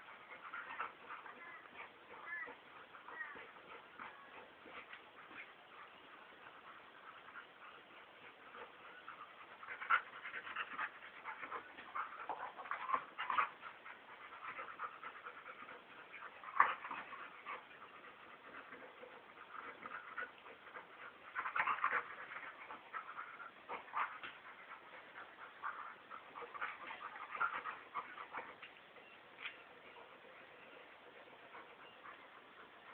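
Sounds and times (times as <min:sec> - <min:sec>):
dogs play-wrestling vocalizing: 0:00.0 - 0:32.9.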